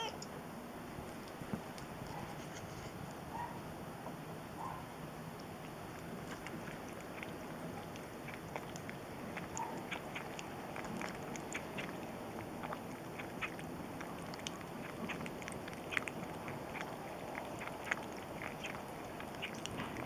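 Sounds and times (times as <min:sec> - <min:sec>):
cat lapping milk: 0:05.0 - 0:20.0.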